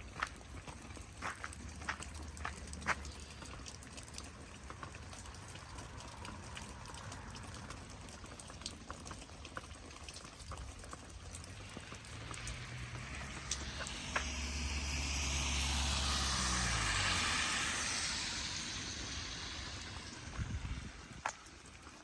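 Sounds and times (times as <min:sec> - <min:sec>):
rain falling and dripping: 0:00.0 - 0:22.0
low hum: 0:11.6 - 0:21.5.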